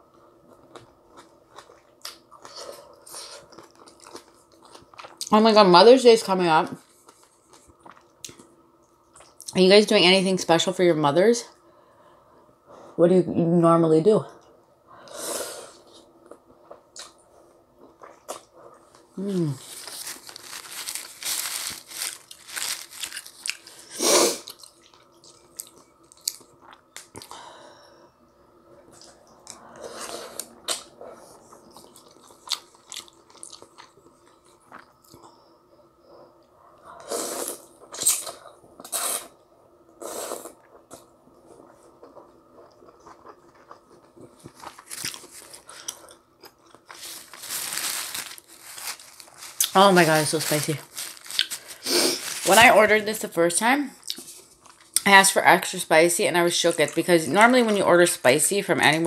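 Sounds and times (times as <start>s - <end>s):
noodles being chewed: 17.9s - 23.8s, 28.9s - 35.4s, 40.1s - 52.5s.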